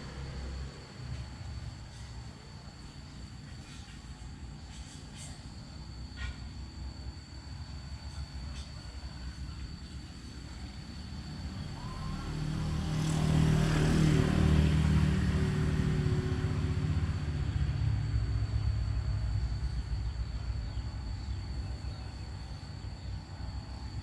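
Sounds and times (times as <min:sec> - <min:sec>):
motor vehicle passing: 0:11.1 - 0:19.4.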